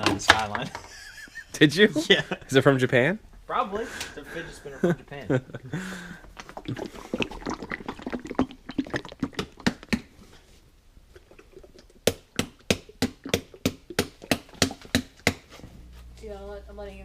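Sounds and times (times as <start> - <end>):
dog lapping and eating: 6.2 - 10.3, 11.0 - 14.9.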